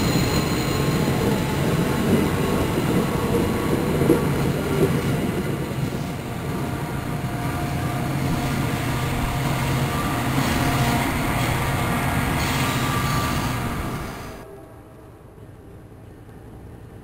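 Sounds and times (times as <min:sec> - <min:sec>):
train wheels rumbling: 0:00.0 - 0:14.5
low train drone: 0:00.0 - 0:17.0.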